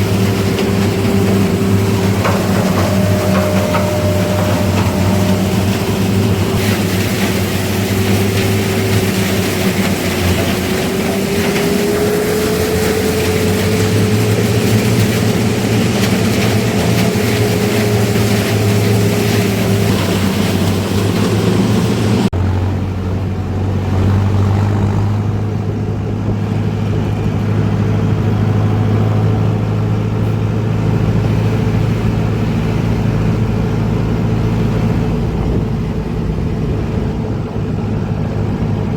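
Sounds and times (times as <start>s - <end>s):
wavering whine: 0.0s - 22.3s
heavy diesel machinery running: 0.0s - 38.9s.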